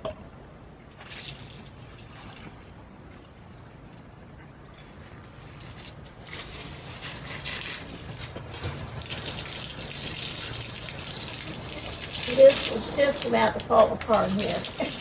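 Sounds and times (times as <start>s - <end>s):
water running: 5.3s - 15.0s.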